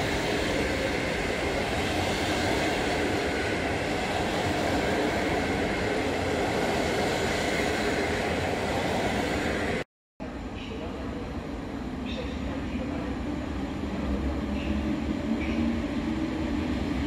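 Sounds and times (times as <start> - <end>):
train wheels on rails: 0.0 - 9.8, 13.8 - 17.0.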